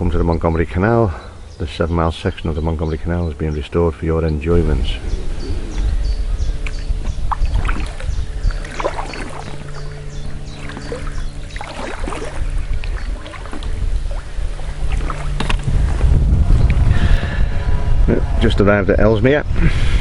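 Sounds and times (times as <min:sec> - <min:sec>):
low drone: 0:00.0 - 0:20.0
wind rumble on microphone: 0:00.0 - 0:20.0
paddle splashes and drips: 0:06.6 - 0:16.0.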